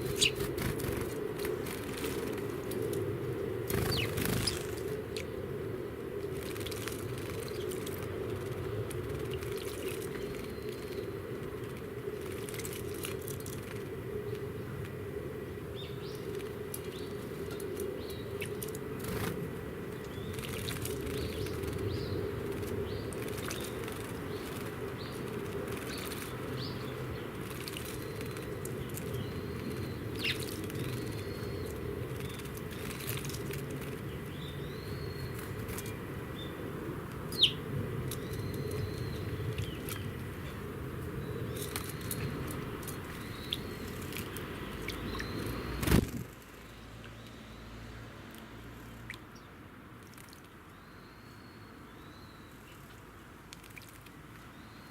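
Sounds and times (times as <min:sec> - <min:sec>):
wing flutters: 0:00.0 - 0:02.9, 0:03.6 - 0:05.0, 0:06.2 - 0:13.9, 0:16.2 - 0:34.1, 0:41.5 - 0:46.6
songbirds chirping: 0:00.0 - 0:54.9.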